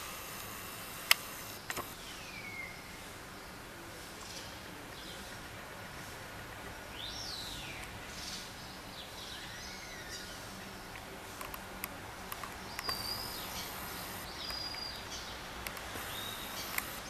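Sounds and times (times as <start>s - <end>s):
sharp ticks: 0.0s - 2.0s, 15.6s - 17.0s
street hum: 0.0s - 17.0s
birds chirping and whistling: 12.7s - 15.3s, 16.0s - 17.0s.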